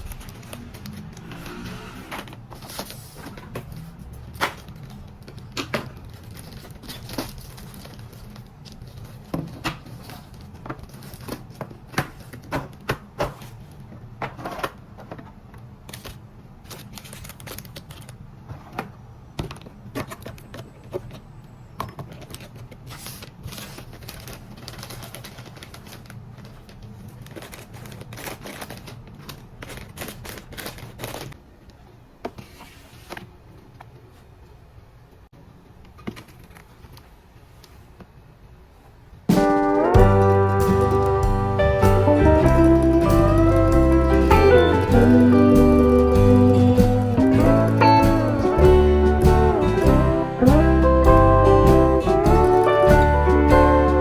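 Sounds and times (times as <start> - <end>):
sharp taps and clicks: 40.0 - 53.8.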